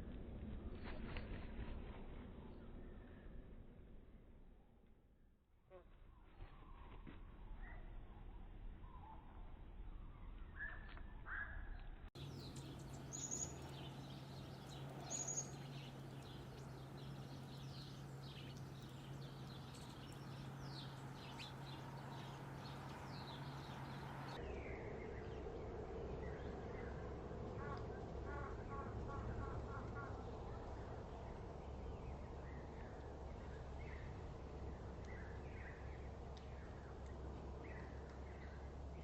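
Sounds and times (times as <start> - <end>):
low steady hum: 0.0 - 39.0
outdoor background noise: 0.0 - 39.0
small birds chirping: 12.2 - 25.5, 27.6 - 39.0.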